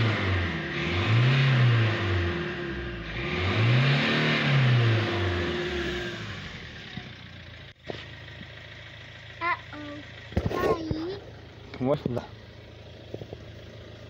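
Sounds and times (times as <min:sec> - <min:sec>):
diesel engine revving: 0:00.0 - 0:14.0
diesel engine idling: 0:05.0 - 0:14.0.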